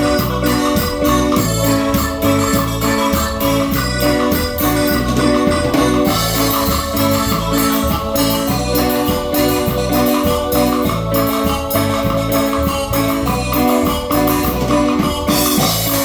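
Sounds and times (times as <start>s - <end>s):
electronic keyboard chords: 0.0s - 16.0s
percussion beat: 0.0s - 16.0s.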